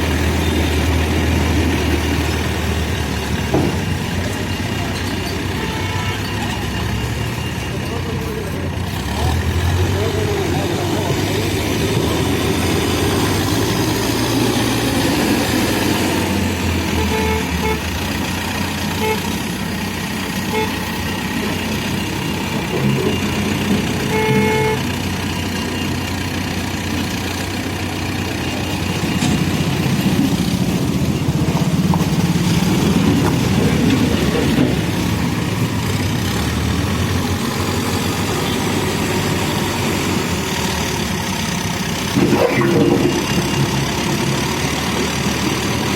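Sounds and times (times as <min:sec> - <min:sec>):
diesel engine running: 0:00.0 - 0:45.9
short vehicle horn toots: 0:17.0 - 0:17.8, 0:24.1 - 0:24.8.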